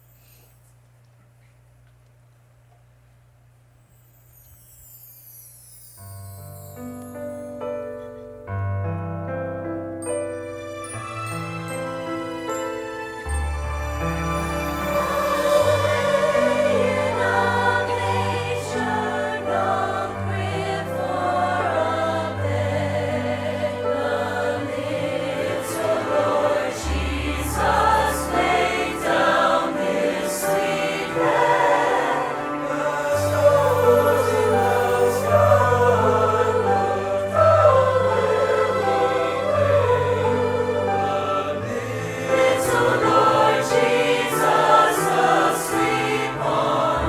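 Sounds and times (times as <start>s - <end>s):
instrumental accompaniment: 4.3s - 47.0s
choir singing: 10.8s - 47.0s.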